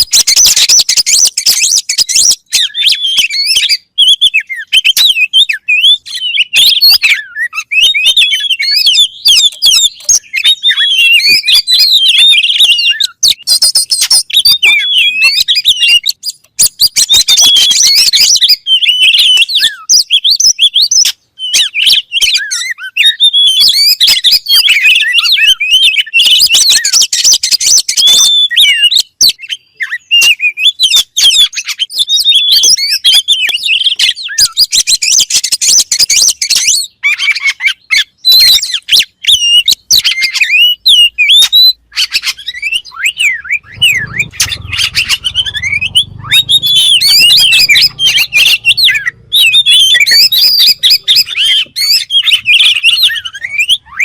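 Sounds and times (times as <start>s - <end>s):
bird singing: 0.0s - 54.0s
faint low rumble: 43.2s - 51.6s.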